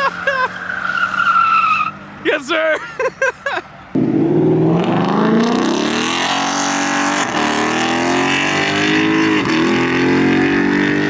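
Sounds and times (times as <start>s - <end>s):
car engine revving high: 4.0s - 11.0s.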